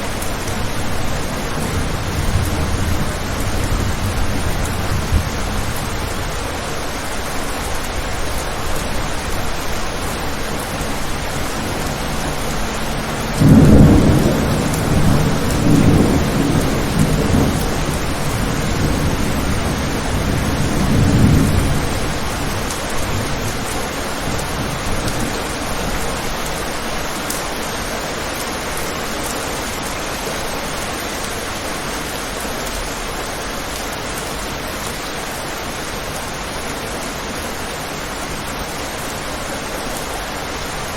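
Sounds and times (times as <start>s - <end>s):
rolling thunder: 0.0s - 7.1s, 7.9s - 26.1s
heavy rain falling: 0.0s - 40.9s.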